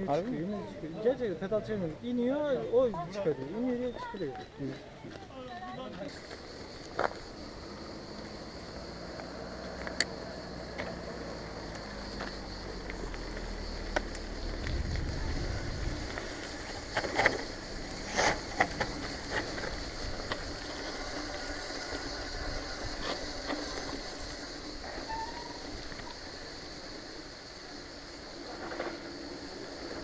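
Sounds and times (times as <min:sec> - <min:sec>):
bike tyre noise: 0:06.1 - 0:30.0
bike rattles and clicks: 0:11.6 - 0:22.1
wind noise: 0:13.6 - 0:21.1.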